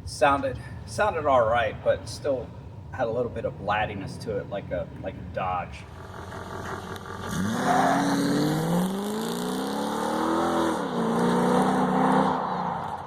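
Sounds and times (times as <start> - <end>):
truck engine accelerating: 5.9 - 13.0.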